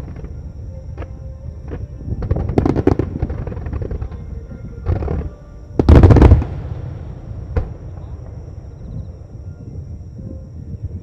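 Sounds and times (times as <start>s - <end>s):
fireworks bangs: 1.7s - 4.2s, 4.9s - 9.4s
fireworks crackling: 1.7s - 4.2s, 4.9s - 8.7s.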